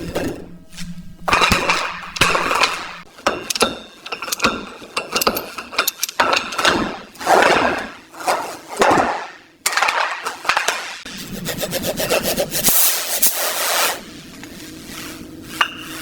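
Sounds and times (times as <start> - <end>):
tool clicks and knocks: 1.3 - 6.9
hand tool scraping: 11.1 - 16.0.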